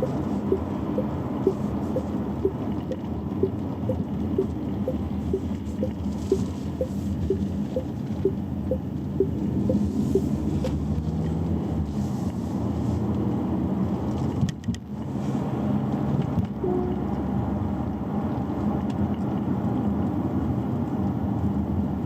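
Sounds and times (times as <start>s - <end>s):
turn signal ticking: 0.0s - 10.9s
car cabin road rumble: 0.0s - 22.0s.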